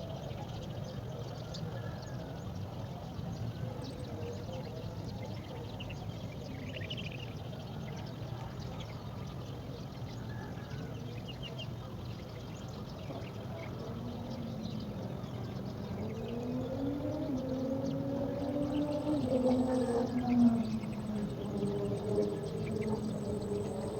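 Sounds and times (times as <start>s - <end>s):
low background hum: 11.8s - 23.9s
faint low rising tone: 13.4s - 23.9s.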